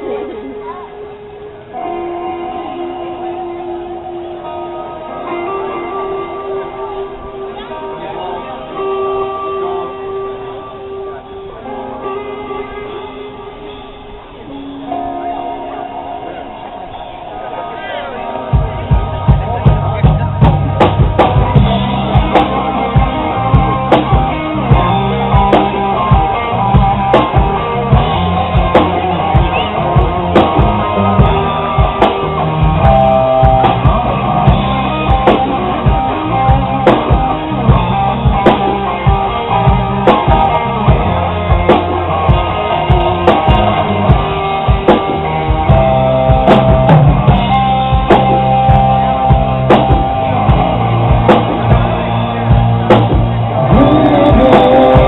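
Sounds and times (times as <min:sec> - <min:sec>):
bass guitar: 0:00.0 - 0:55.0
electric guitar: 0:00.0 - 0:55.0
drum kit beat: 0:18.5 - 0:55.0.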